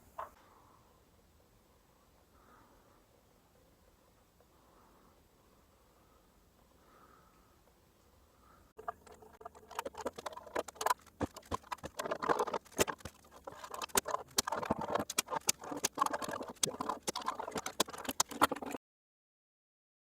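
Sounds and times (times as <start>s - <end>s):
scraping and rubbing on wood: 8.8s - 18.8s.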